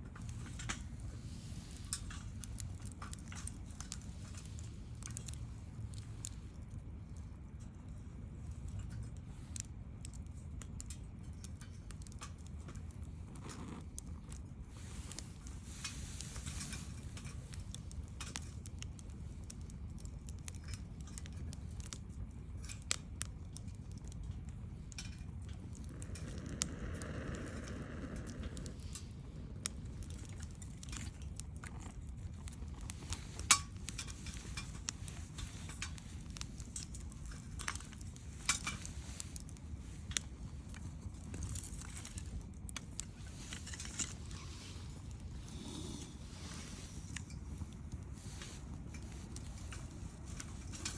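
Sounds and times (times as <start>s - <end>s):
wood fire crackling: 0.0s - 50.9s
sharp pops of fire: 0.2s - 50.9s
soft hiss: 23.7s - 31.6s.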